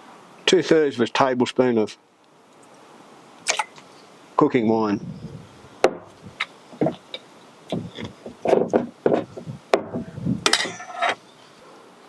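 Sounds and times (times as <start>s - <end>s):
bottles clicking and knocking: 6.8s - 11.2s
measuring spoon scraping: 10.5s - 11.2s.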